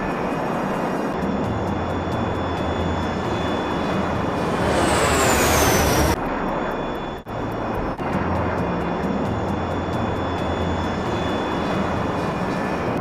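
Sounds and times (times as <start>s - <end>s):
jet engine running: 0.0s - 13.0s
high whine falling in pitch: 1.8s - 7.9s.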